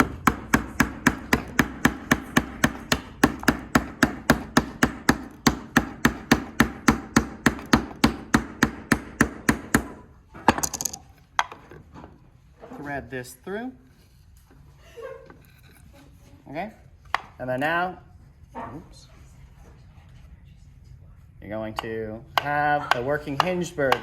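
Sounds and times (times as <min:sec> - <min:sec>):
hammer tapping nail into wood: 0:00.0 - 0:10.0.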